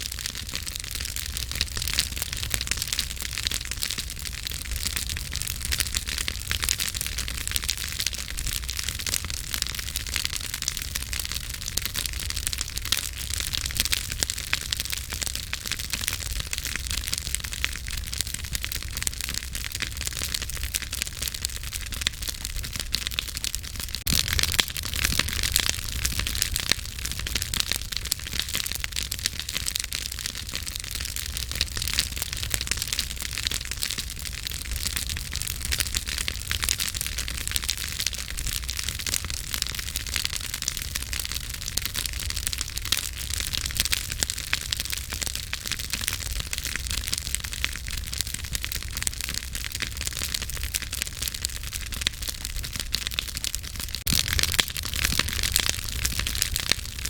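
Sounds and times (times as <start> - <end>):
campfire crackling and popping: 0.0 - 57.0
low steady rumble: 24.0 - 27.9.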